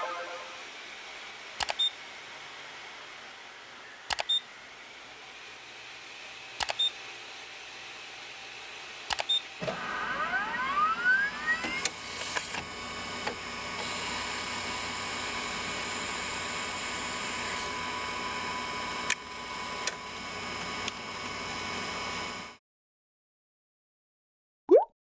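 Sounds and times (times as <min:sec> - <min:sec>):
light mechanical clicks: 0:01.6 - 0:01.9, 0:04.1 - 0:04.4, 0:06.6 - 0:06.9, 0:09.1 - 0:09.4
milling machine spindle whine: 0:09.6 - 0:22.5.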